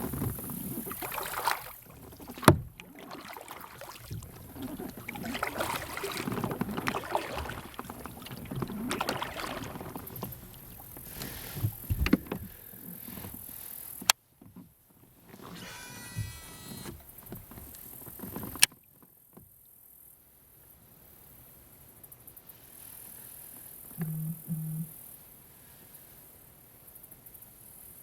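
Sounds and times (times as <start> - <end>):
water against kayak hull: 0.0 - 19.6, 23.5 - 25.1.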